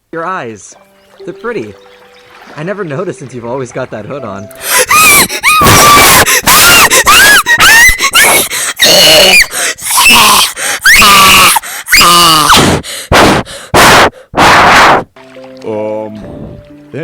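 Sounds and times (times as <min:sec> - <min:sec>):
person screaming in excitement: 0:04.6 - 0:12.6.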